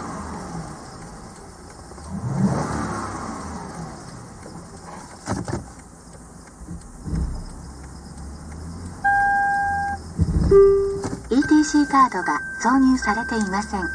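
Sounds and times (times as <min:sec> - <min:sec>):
car engine revving and idling: 0:00.0 - 0:13.9
sharp clicks: 0:03.7 - 0:10.3
dull thump: 0:06.7 - 0:07.5, 0:10.1 - 0:11.3.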